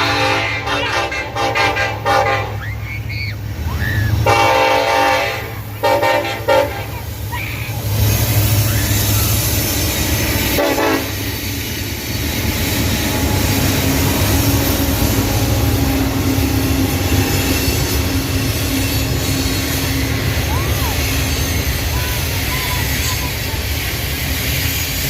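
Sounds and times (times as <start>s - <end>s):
locomotive horn blast: 0.0s - 2.6s, 4.1s - 7.2s, 9.8s - 11.4s
train rumbling past: 0.0s - 25.0s.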